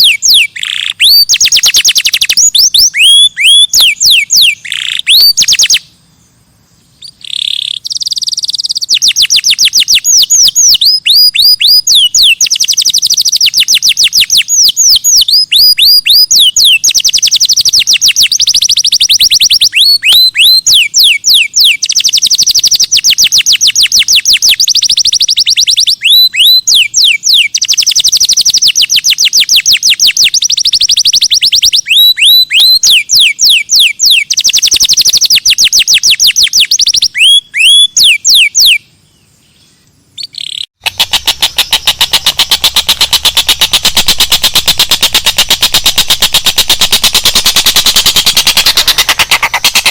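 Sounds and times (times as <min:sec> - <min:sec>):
songbird whistling falling notes: 0:00.0 - 0:05.9, 0:07.0 - 0:38.8.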